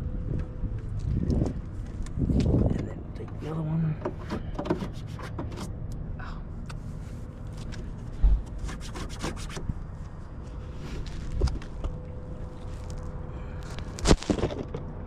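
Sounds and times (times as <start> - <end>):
faint hum: 0.0 - 15.0
plastic rubbing and scraping: 4.0 - 5.8, 7.5 - 9.7.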